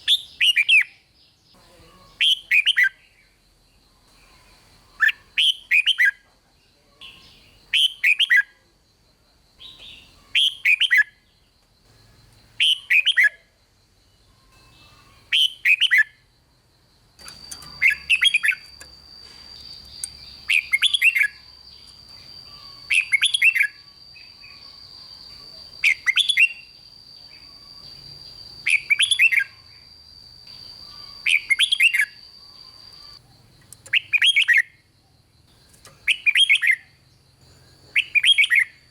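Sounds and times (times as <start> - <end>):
bird singing warbling phrases: 4.2 - 8.6, 12.6 - 13.4, 17.2 - 34.8, 35.5 - 38.9
thin high whine: 17.2 - 33.2.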